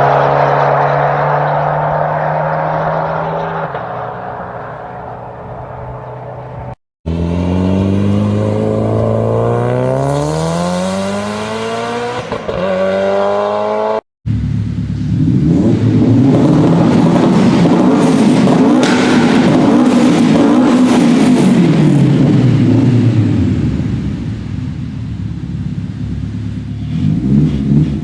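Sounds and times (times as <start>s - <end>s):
car engine revving: 0.0s - 24.8s, 25.6s - 28.0s
rough engine at high load: 0.0s - 28.0s
car engine running: 14.3s - 27.7s.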